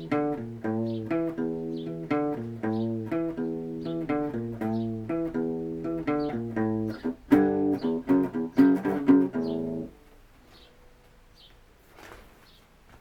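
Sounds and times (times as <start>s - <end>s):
guitar playing rock riff: 0.0s - 10.1s.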